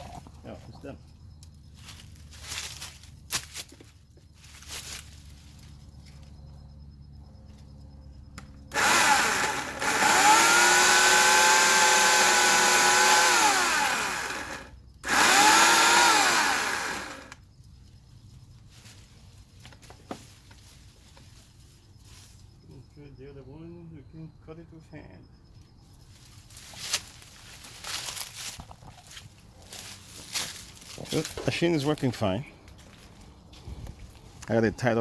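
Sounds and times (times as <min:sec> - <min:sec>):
electric chainsaw motor whine: 0:08.5 - 0:17.4.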